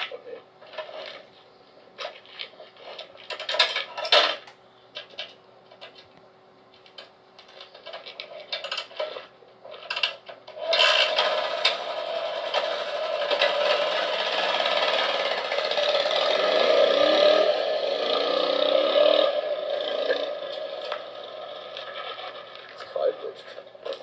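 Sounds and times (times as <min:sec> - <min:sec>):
motorcycle kickstarter rasping and clatter: 0:00.0 - 0:01.4, 0:02.0 - 0:06.1, 0:06.7 - 0:24.0
motorcycle engine running: 0:10.6 - 0:24.0.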